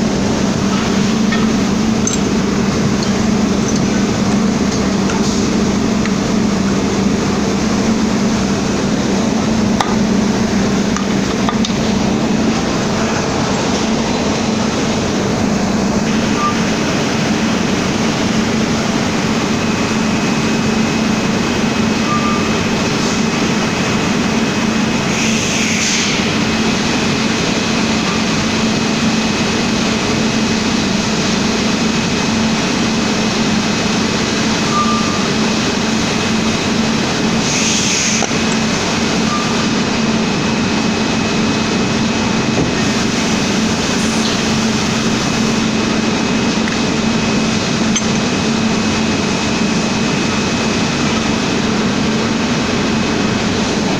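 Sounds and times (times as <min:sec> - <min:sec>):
milling machine humming: 0:00.0 - 0:53.9.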